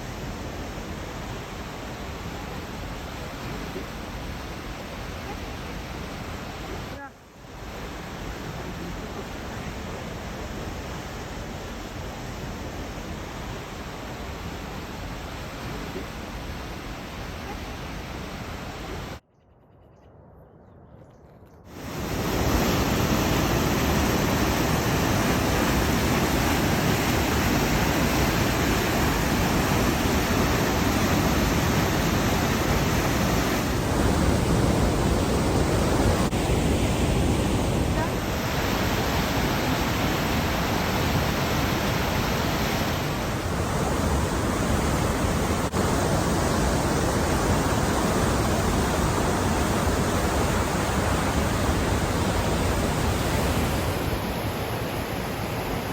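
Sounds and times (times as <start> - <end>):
fast-flowing water rushing: 21.7 - 55.9.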